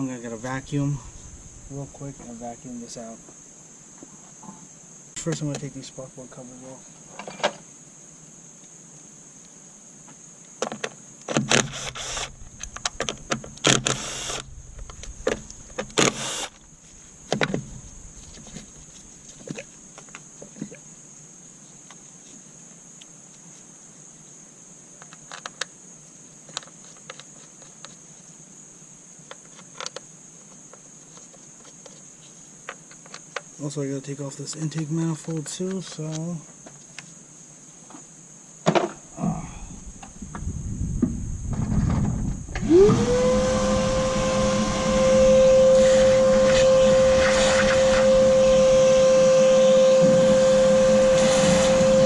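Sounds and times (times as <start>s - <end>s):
small power tool whirring: 11.5s - 13.0s, 13.6s - 16.6s, 42.5s - 52.0s.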